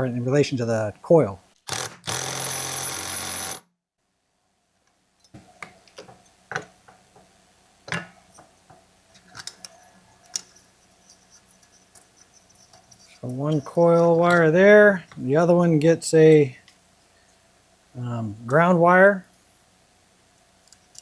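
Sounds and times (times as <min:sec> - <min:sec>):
impact wrench running: 0:01.6 - 0:03.6.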